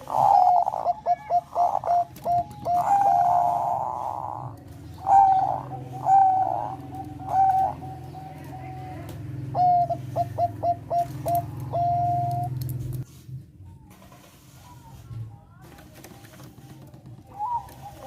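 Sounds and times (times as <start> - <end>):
dove cooing: 0.0 - 12.7, 17.2 - 18.0.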